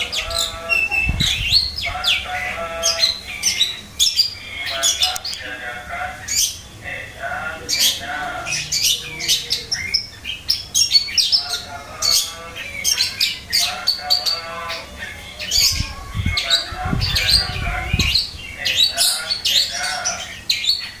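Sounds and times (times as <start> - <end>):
bird singing harsh chattering: 0.0 - 21.0
low rumbling thumps: 0.5 - 2.0.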